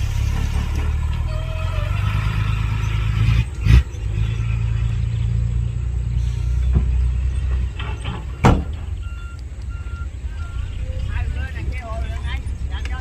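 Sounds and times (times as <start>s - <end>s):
heavy diesel engine rumbling: 0.0s - 13.0s.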